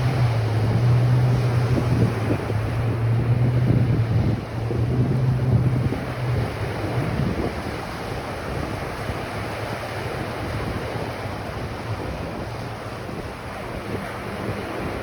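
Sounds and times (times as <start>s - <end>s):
ocean waves breaking on beach: 0.0s - 15.0s
wind rumbling on microphone: 0.0s - 15.0s.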